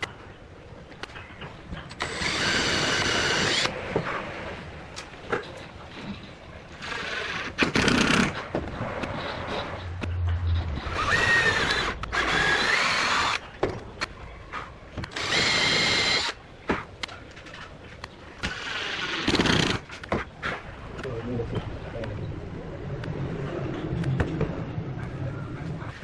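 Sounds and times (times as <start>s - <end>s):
workshop knocks and clatter: 8.3s - 10.2s, 13.5s - 13.9s
power tool motor whining: 15.2s - 16.4s.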